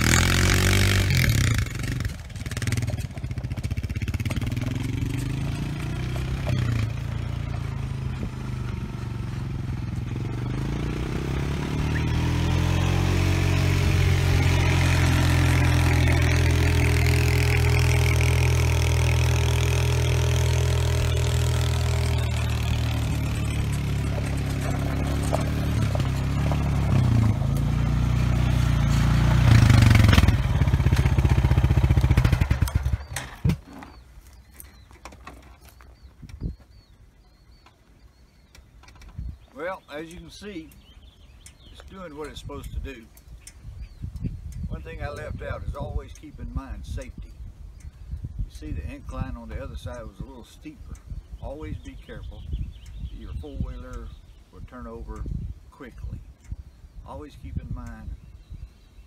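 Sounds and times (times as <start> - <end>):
atv engine running under load: 0.0 - 34.0.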